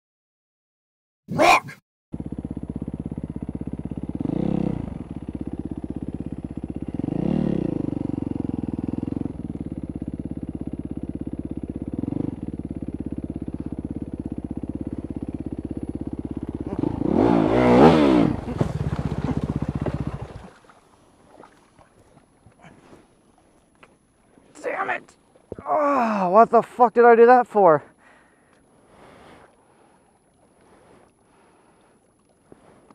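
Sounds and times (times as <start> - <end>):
motorcycle engine revving: 1.4 - 20.6.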